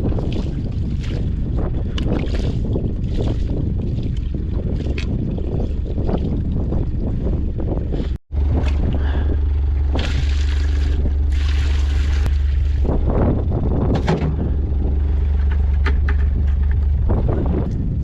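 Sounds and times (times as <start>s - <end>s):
wind rumbling on microphone: 0.0s - 18.0s
small vehicle engine idling: 8.3s - 18.0s.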